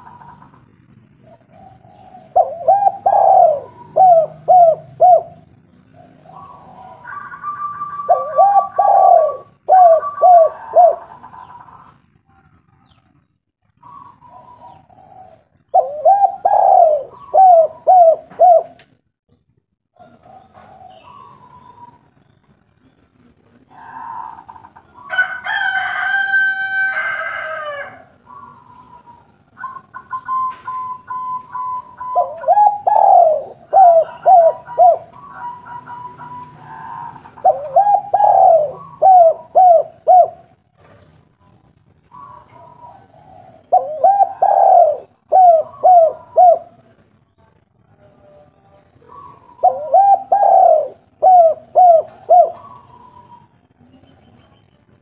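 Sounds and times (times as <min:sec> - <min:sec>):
doves cooing: 0:00.0 - 0:12.2, 0:13.6 - 0:19.0, 0:20.0 - 0:47.2, 0:48.9 - 0:53.7
rooster crowing: 0:06.8 - 0:11.1, 0:23.9 - 0:28.2, 0:33.8 - 0:37.5.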